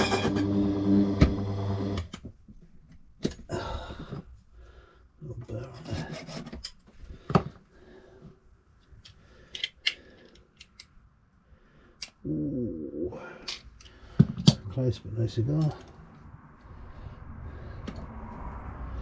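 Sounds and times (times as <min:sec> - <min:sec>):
small power tool humming: 0:00.0 - 0:02.1.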